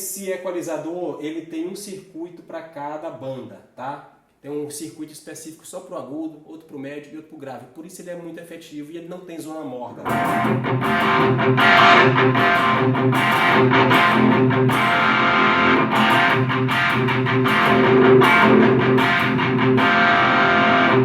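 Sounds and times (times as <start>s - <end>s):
distorted electric guitar: 10.0s - 21.0s.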